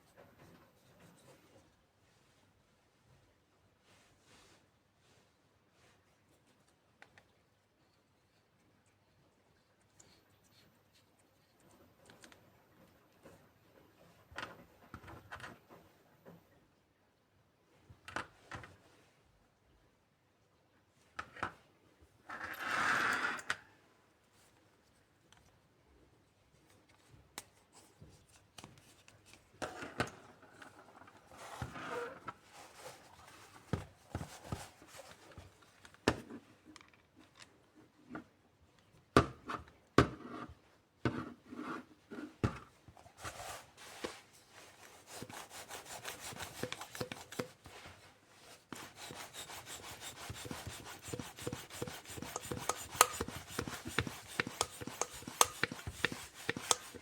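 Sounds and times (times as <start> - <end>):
fast scraping rubbing strokes: 44.8 - 47.8, 48.7 - 57.0
bike pump clicks and knocks: 50.4 - 57.0.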